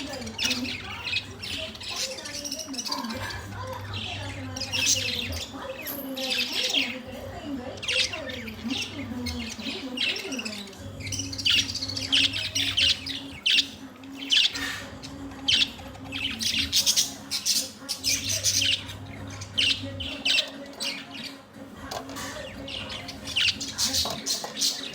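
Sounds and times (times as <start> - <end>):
budgerigars chirping: 0.0 - 24.9.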